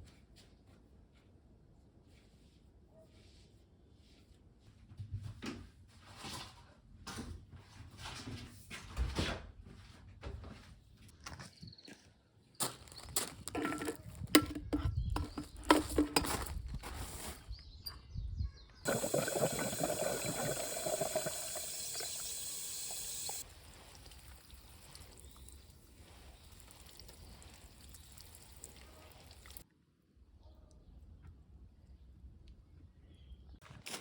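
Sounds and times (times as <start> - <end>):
liquid pouring: 18.9 - 29.6.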